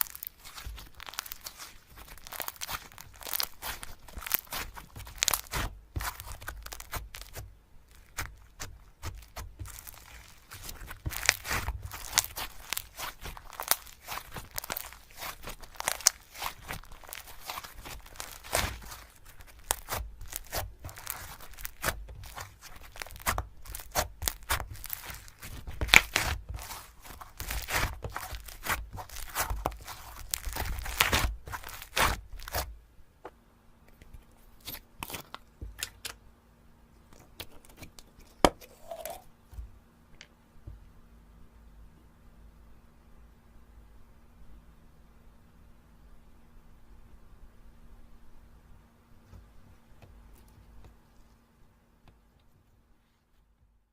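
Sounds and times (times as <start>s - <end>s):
slime squished by hand: 0.0s - 32.7s, 34.0s - 36.2s.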